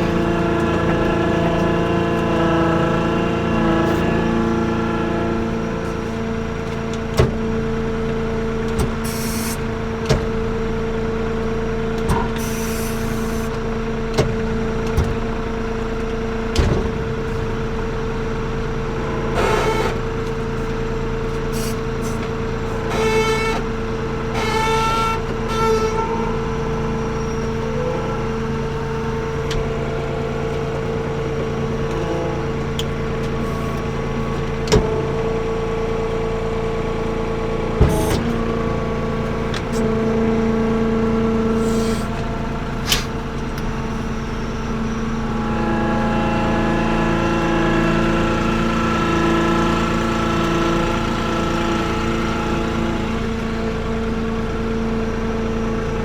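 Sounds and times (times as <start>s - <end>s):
diesel engine humming: 0.0s - 56.0s
brief squeals: 21.5s - 23.7s, 24.3s - 26.5s, 27.1s - 28.4s.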